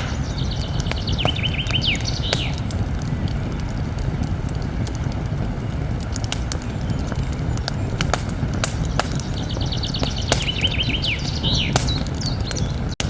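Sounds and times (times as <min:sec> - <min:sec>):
bird chirping: 0:00.0 - 0:02.7, 0:06.4 - 0:13.0
campfire crackling and popping: 0:00.0 - 0:13.0.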